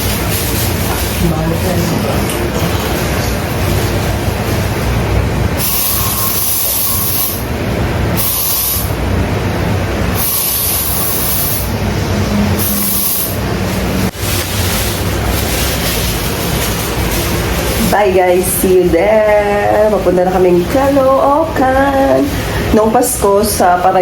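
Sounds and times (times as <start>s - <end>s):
hiss: 5.6s - 7.5s, 8.2s - 9.0s, 10.2s - 11.8s, 12.6s - 13.4s.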